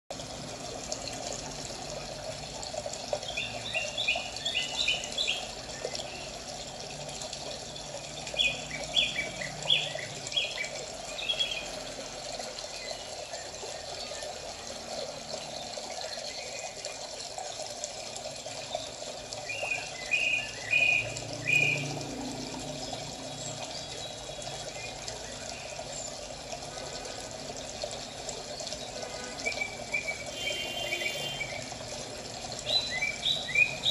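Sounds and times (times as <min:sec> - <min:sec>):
birds chirping: 0:03.2 - 0:11.9, 0:28.1 - 0:31.7, 0:32.6 - 0:33.9.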